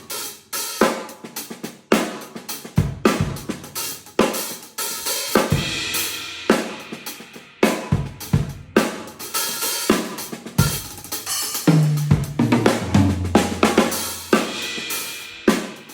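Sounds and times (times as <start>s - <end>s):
snare and tom fills: 0.0s - 15.9s
cymbal crash: 11.2s - 15.9s.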